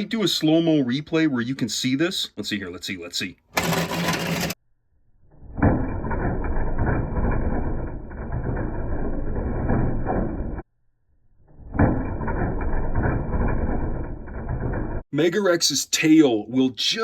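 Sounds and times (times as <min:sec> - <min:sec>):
toy truck rumbling on plastic track: 0:03.5 - 0:04.6, 0:05.4 - 0:10.6, 0:11.6 - 0:15.0.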